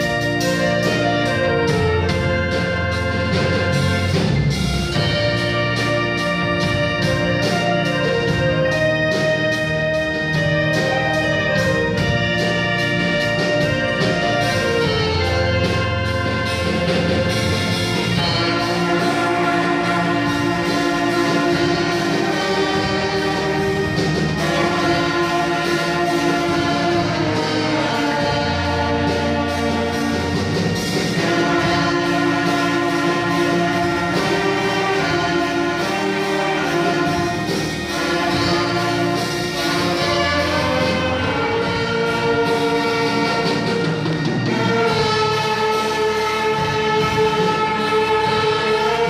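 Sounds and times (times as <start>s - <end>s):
brass orchestra playing a hymn: 0.0s - 49.0s.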